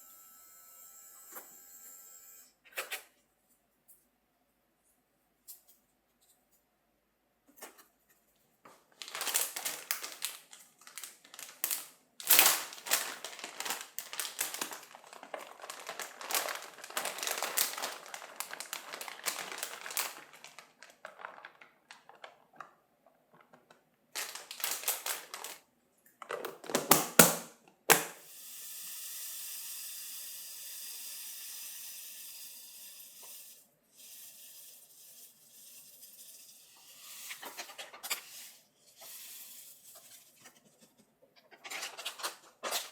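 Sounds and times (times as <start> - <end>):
rustling and crinkling: 7.5 - 25.6, 37.0 - 42.9.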